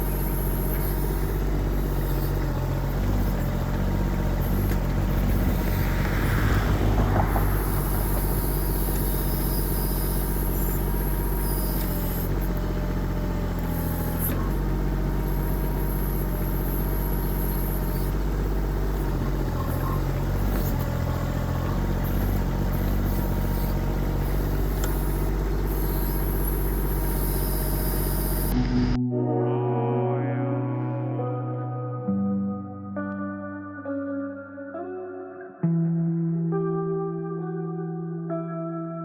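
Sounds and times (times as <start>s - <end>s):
diesel excavator engine running: 0.0s - 29.0s.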